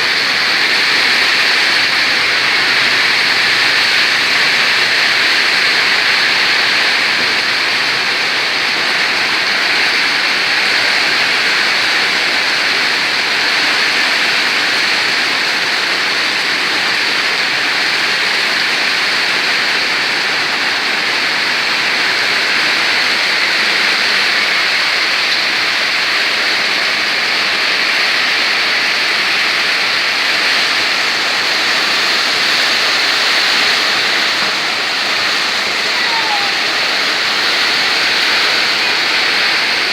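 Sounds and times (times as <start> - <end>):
heavy rain in windstorm: 0.0 - 39.9.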